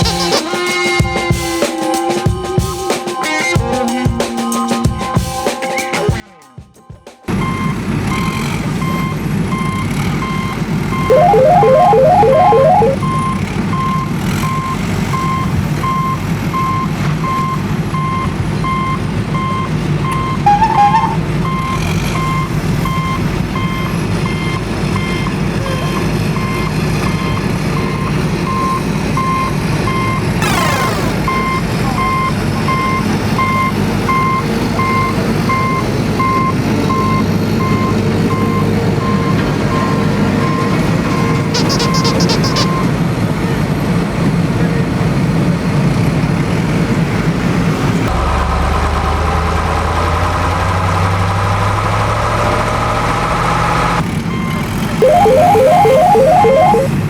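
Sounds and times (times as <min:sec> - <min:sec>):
truck reversing alarm beeping: 0:07.4 - 0:42.9, 0:54.3 - 0:57.0.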